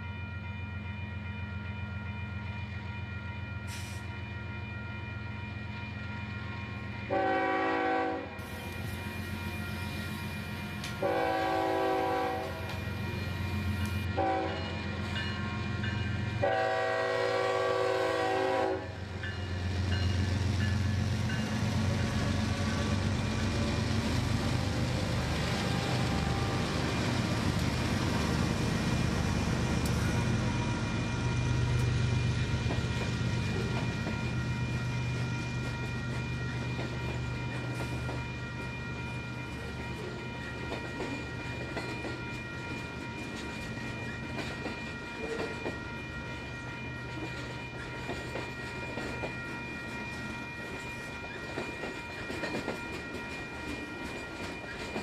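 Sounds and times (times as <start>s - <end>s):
freight train rumbling past: 0.0s - 55.0s
train horn blasts: 7.1s - 8.4s, 11.0s - 12.8s, 14.0s - 14.9s, 16.4s - 19.0s, 25.5s - 26.7s.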